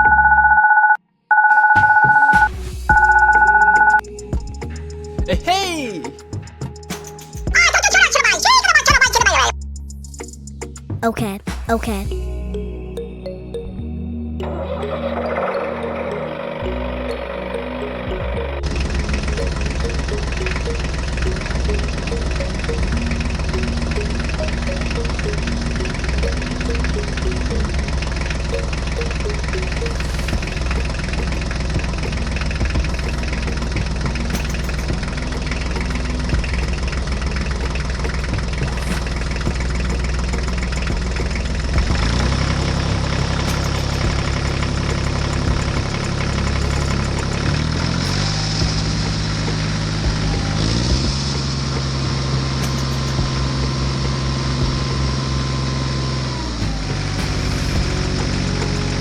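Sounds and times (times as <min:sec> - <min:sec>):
rising tone: 0:12.1 - 0:59.0.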